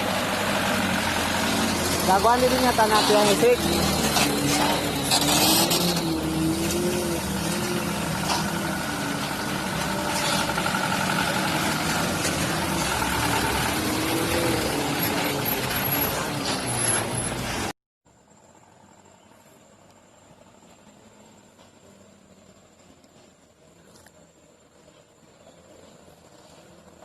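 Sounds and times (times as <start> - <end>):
truck engine running: 0.0 - 17.7
road noise: 0.0 - 27.0.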